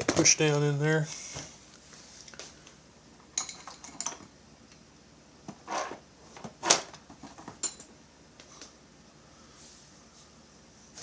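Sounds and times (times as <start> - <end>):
metal parts and tools clinking: 3.4 - 4.3, 6.7 - 7.9.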